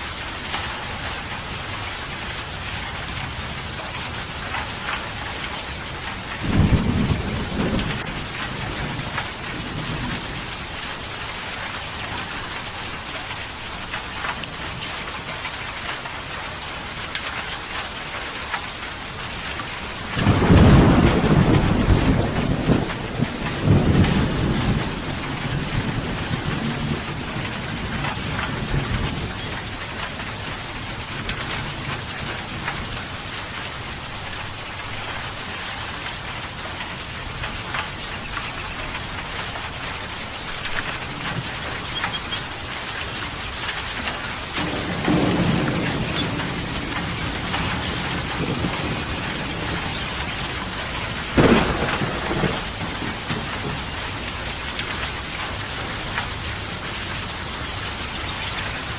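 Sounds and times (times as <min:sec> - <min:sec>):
thunder rumbling: 0:00.0 - 0:11.5, 0:19.9 - 0:36.0, 0:37.0 - 0:56.9
heavy rain falling: 0:00.0 - 0:58.9
sharp thunder clap: 0:20.2 - 0:29.3, 0:44.6 - 0:54.0.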